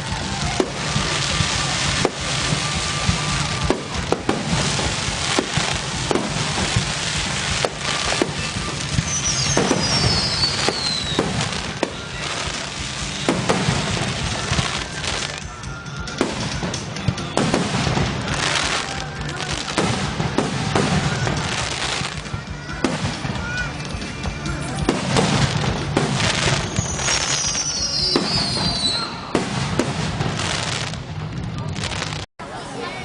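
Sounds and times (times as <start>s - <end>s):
fireworks bangs: 0.0s - 32.3s
fireworks crackling: 0.0s - 32.3s
high falling whistle: 26.6s - 29.4s.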